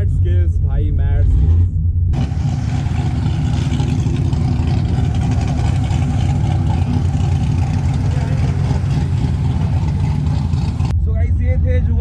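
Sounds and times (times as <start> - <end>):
car engine running: 2.2 - 10.9.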